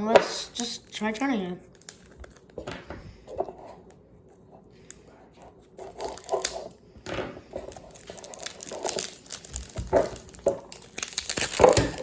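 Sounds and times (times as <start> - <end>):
packaging rustling and clicking: 5.6 - 6.8, 7.5 - 12.0.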